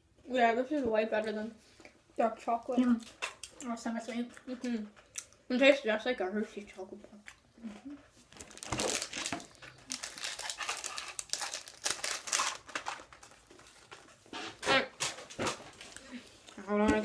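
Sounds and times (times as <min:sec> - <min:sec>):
snack packaging crinkling: 0:08.3 - 0:14.3.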